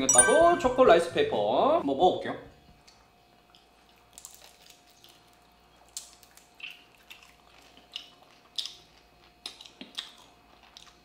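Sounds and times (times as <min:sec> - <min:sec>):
wet chewing sounds: 0:03.4 - 0:11.0.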